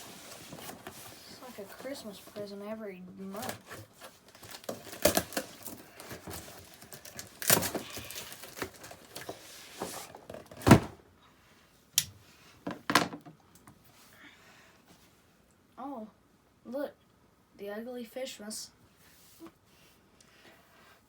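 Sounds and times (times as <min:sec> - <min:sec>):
packaging rustling: 0:03.3 - 0:10.8.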